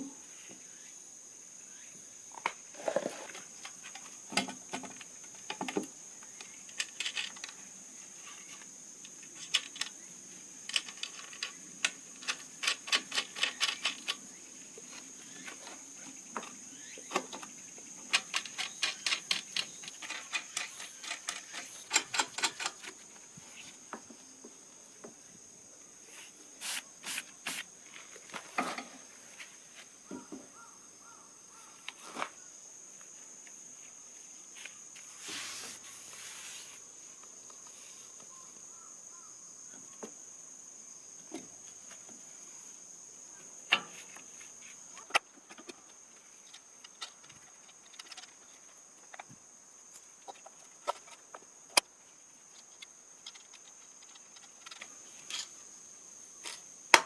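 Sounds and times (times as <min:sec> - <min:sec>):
high insect drone: 0:00.0 - 0:57.0
hiss: 0:26.0 - 0:27.8, 0:34.6 - 0:38.1.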